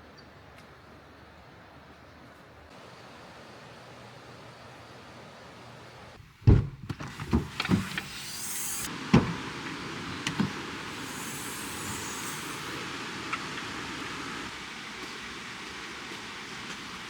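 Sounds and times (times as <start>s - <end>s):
steady rain hiss: 2.7s - 6.2s, 7.0s - 17.0s.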